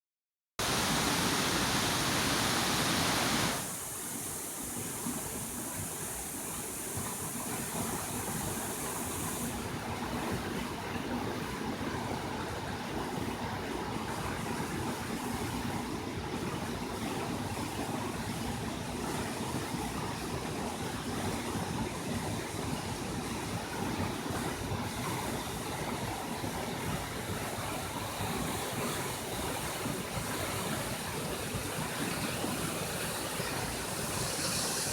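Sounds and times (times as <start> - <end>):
waterfall roaring: 0.6 - 9.5, 27.6 - 34.9.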